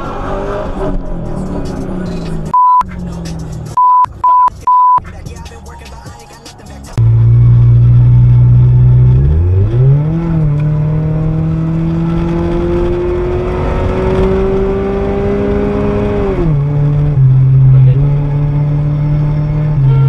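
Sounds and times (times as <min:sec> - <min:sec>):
car engine accelerating: 0:00.0 - 0:04.5, 0:05.1 - 0:20.0.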